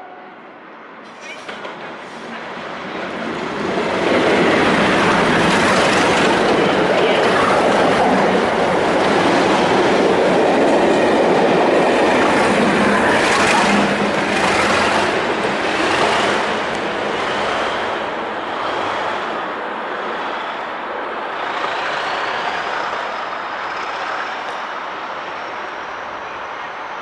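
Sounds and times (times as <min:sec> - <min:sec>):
train wheel noise: 0:00.8 - 0:27.0.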